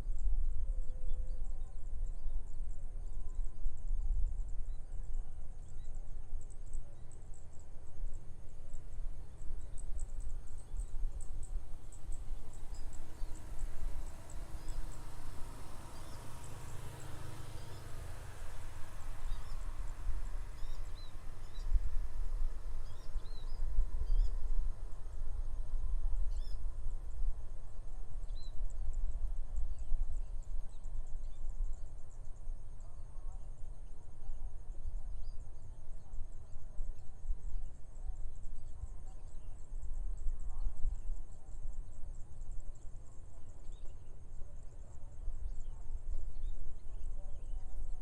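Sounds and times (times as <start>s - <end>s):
wind rumbling on microphone: 0.0s - 48.0s
high insect buzz: 11.7s - 24.4s.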